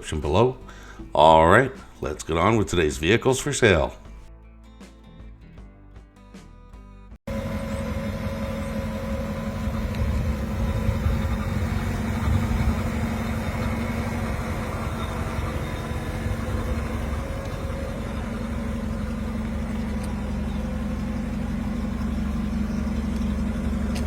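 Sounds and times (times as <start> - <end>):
car engine idling: 0.0 - 1.2, 7.3 - 24.0.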